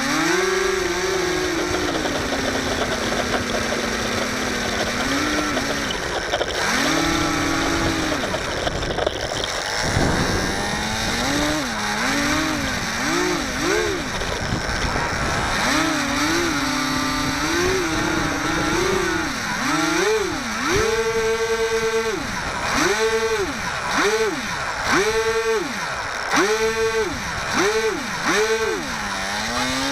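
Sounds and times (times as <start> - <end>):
model plane motor whining: 0.0 - 29.9
wind on microphone: 0.8 - 19.7.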